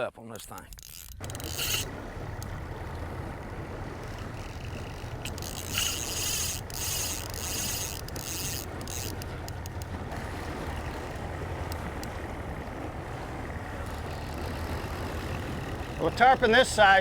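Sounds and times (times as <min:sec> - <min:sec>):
fly reel buzzing: 0:00.8 - 0:02.5, 0:04.0 - 0:09.6.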